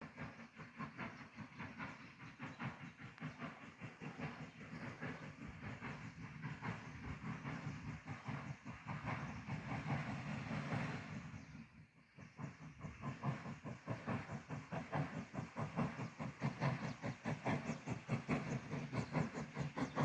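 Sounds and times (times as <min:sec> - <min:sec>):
train chugging: 0:00.0 - 0:20.0.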